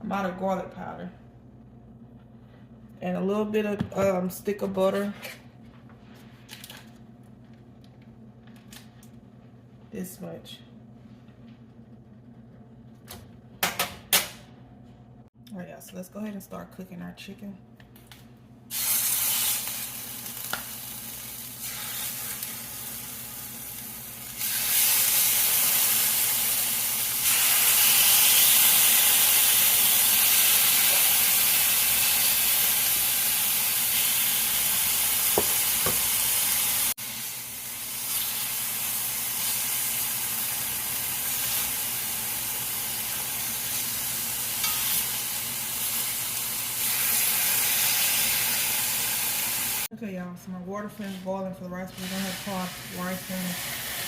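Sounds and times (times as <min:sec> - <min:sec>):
chicken sizzling in a skillet: 0:18.7 - 0:49.9, 0:52.0 - 0:54.0.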